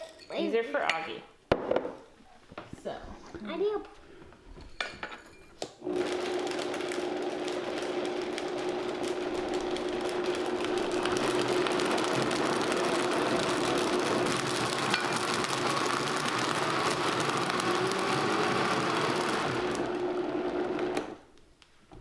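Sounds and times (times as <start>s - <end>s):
blender motor running: 5.8s - 21.2s.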